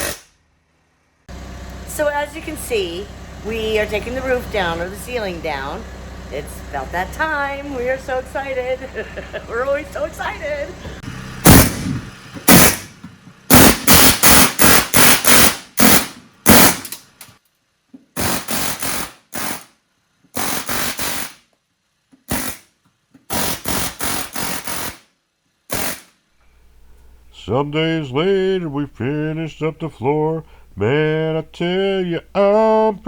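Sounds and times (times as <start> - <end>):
power tool rattling on rivets: 10.8 - 17.4, 18.2 - 19.7.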